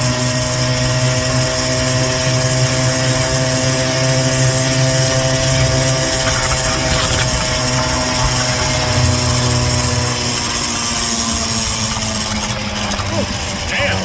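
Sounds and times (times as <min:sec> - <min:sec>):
scooter engine droning: 0:00.0 - 0:14.0.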